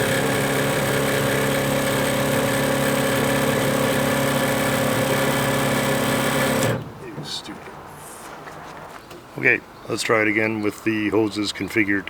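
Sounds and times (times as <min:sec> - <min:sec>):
electric fuel pump buzzing: 0:00.0 - 0:07.0.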